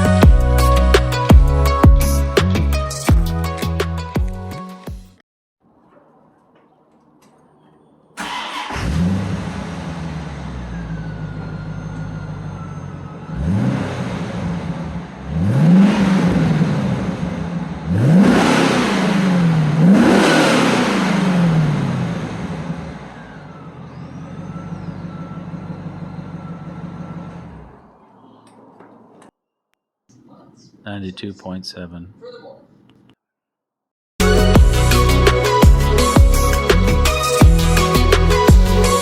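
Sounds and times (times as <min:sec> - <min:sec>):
car engine idling and revving: 0:08.2 - 0:29.3, 0:34.2 - 0:39.0.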